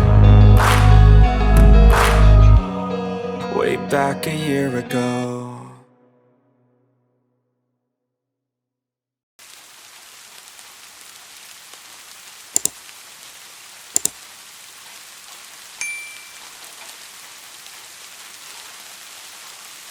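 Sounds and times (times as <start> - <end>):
rain hiss: 9.4 - 19.9
sharp double clicks: 12.6 - 12.8, 14.0 - 14.2
short ringing ding: 15.8 - 16.4.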